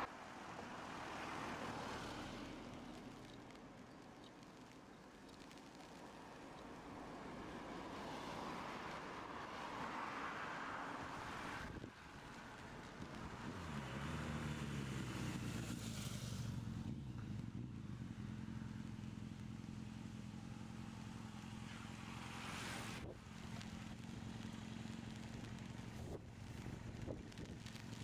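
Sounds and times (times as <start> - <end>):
outdoor background: 0.0 - 28.0
car engine humming in low gear: 11.6 - 28.0.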